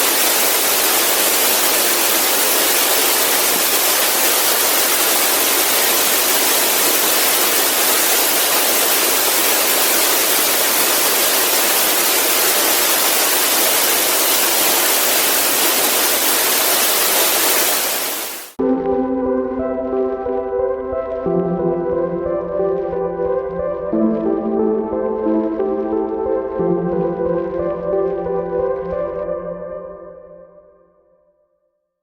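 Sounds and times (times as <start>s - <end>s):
waterfall rushing: 0.0s - 18.6s.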